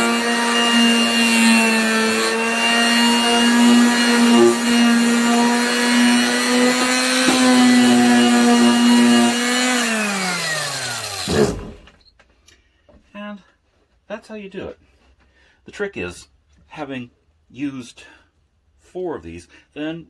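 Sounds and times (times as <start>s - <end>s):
motor winding down: 0.0s - 11.9s
palm sander rasping on wood: 0.0s - 11.9s.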